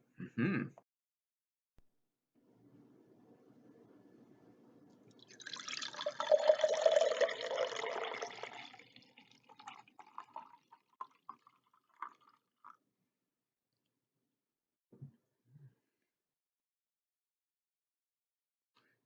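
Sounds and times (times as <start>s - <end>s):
juice poured into a glass: 5.1s - 12.8s
liquid dripping: 5.1s - 12.8s.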